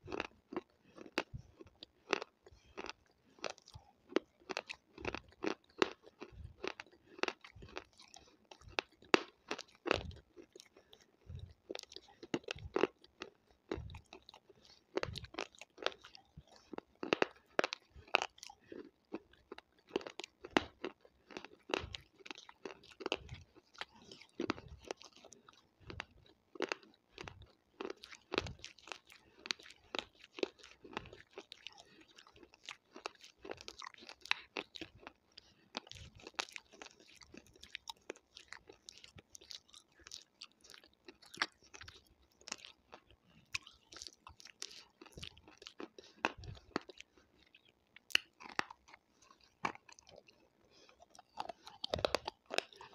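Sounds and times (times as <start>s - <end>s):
person chewing and crunching: 0.0s - 52.9s
wet mouth clicks: 38.5s - 52.9s.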